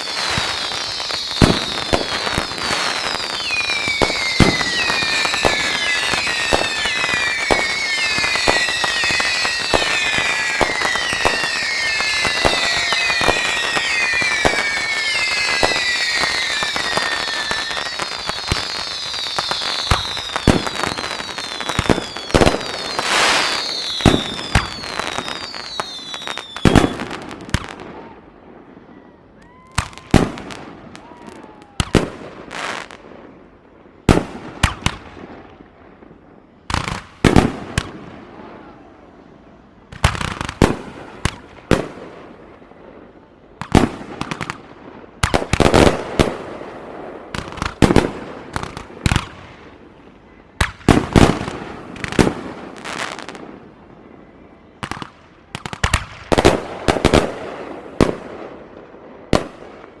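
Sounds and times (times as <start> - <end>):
fireworks crackle: 0.0 - 28.2, 39.9 - 54.1, 54.8 - 60.0
fireworks bangs: 0.0 - 39.2, 39.9 - 53.8, 54.8 - 60.0.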